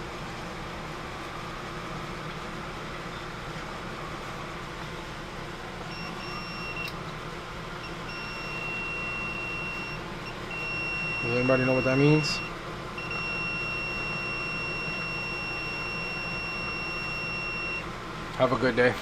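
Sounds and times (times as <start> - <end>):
equipment hum: 0.0 - 19.0
multimeter continuity beep: 5.9 - 7.0, 7.8 - 17.9.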